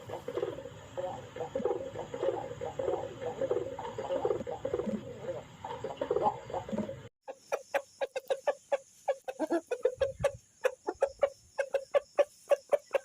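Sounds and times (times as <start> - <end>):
chicken clucking: 0.0 - 13.0.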